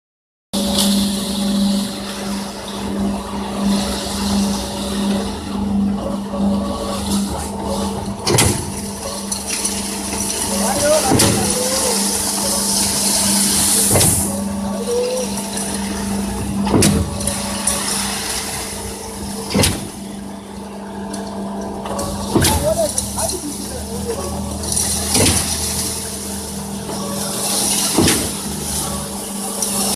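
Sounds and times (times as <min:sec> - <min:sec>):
concrete pump droning: 0:00.6 - 0:29.9
sharp knocks: 0:16.6 - 0:17.2.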